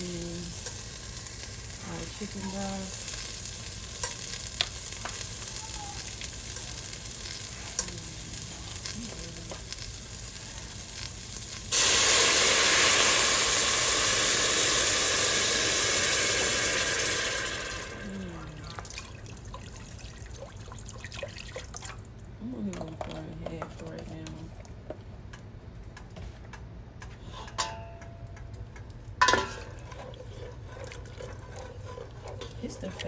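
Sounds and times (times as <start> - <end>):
onion sizzling in butter: 0.0 - 18.5
broth poured into hot pot: 9.7 - 22.0.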